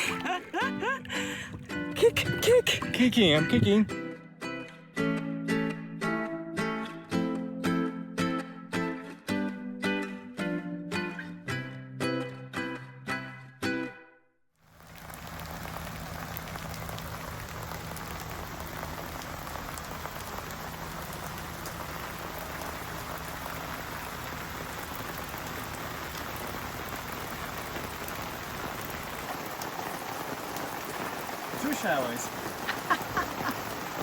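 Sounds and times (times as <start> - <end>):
rain pattering: 0.0 - 4.0, 14.6 - 34.0.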